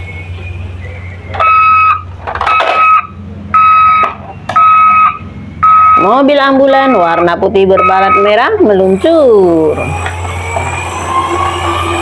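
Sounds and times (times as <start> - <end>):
toy electronic beeps: 6.8 - 12.0.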